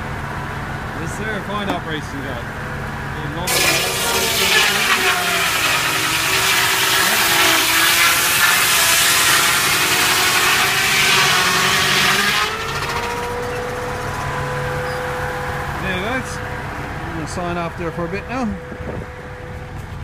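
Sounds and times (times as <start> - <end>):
engine running: 0.0 - 20.0
saw blade cutting log: 3.5 - 15.0.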